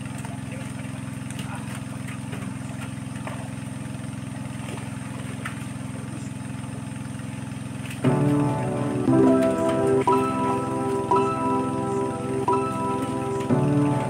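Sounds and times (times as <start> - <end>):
small engine running: 0.0 - 14.0
music: 8.0 - 14.0.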